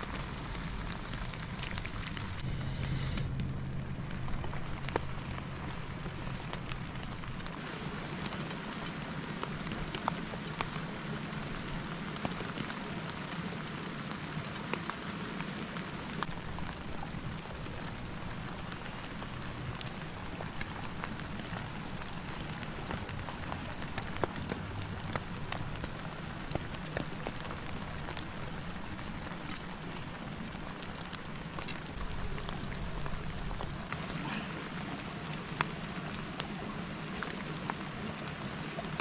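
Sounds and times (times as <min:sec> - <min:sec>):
rain hissing: 0:00.0 - 0:39.0.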